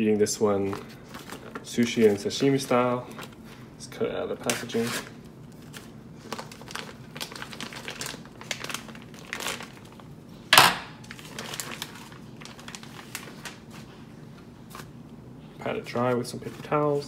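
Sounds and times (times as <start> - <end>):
packaging crinkling and rustling: 0.5 - 3.6, 4.4 - 10.1, 11.0 - 15.0, 15.8 - 17.0
packaging ripping: 4.4 - 10.0, 11.0 - 13.7.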